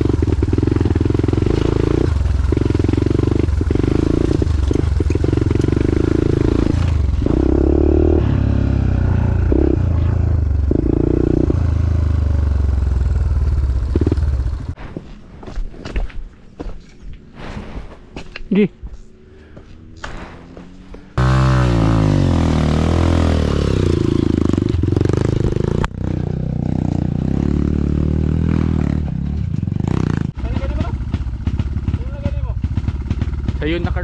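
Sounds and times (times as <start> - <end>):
motorcycle engine running: 0.0 - 14.8, 20.6 - 34.0
clicks and scuffs: 14.8 - 21.2.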